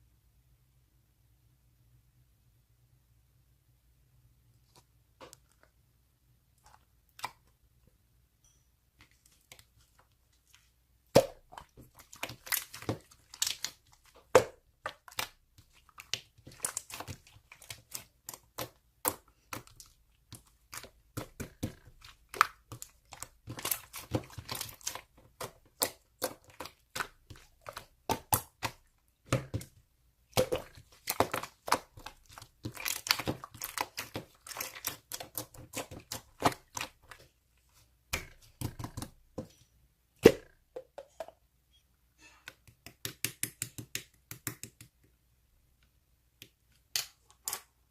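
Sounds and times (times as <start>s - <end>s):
slime squished by hand: 10.4s - 37.3s.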